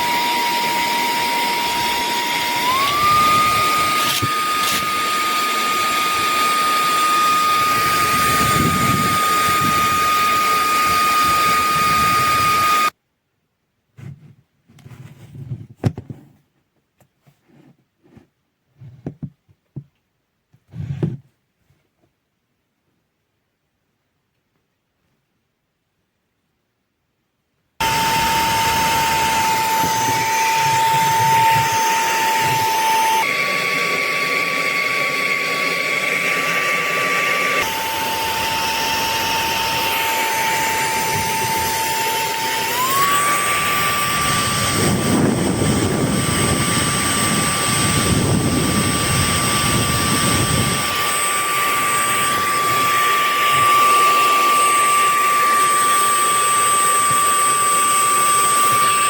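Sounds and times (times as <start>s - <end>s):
handheld vacuum running: 0.0s - 12.9s, 27.8s - 59.0s.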